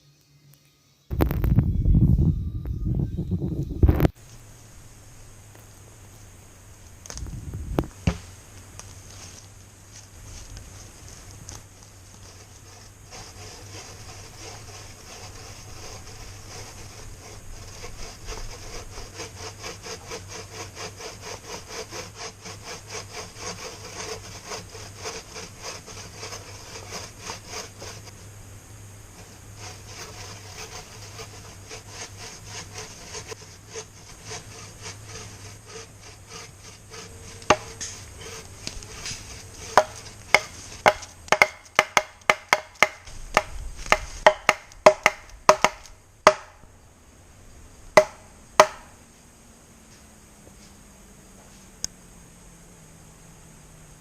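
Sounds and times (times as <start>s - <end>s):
sharp wooden knocks: 7.8s - 8.3s, 36.9s - 38.4s, 39.6s - 46.6s, 48.0s - 48.9s
saw cutting wood: 10.4s - 28.3s, 29.1s - 46.6s, 47.9s - 49.0s.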